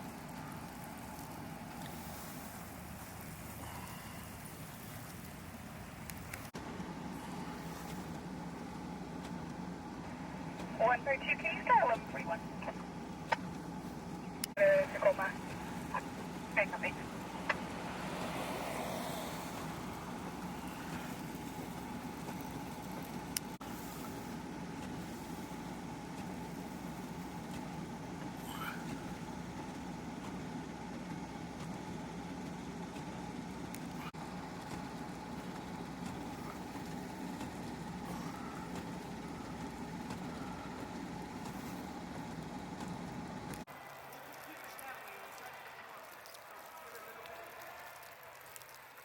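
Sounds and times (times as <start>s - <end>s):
vehicle engine running: 0.0s - 48.4s.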